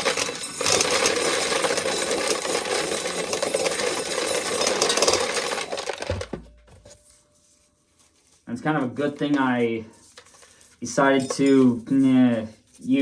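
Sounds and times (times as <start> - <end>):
corn sheller rattling: 0.0 - 7.0.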